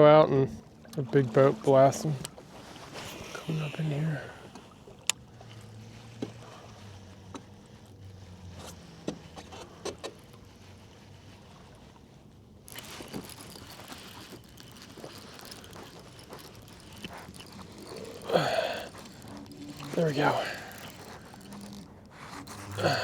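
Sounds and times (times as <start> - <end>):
water splashing: 12.5 - 23.0
electric motor hum: 12.7 - 23.0.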